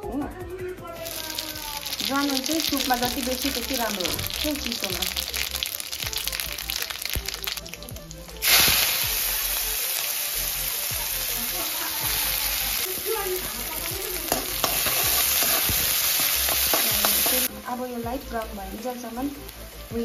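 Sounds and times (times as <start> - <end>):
onions sizzling in hot oil: 1.0 - 20.0
spoon clicking against pan: 14.3 - 17.4.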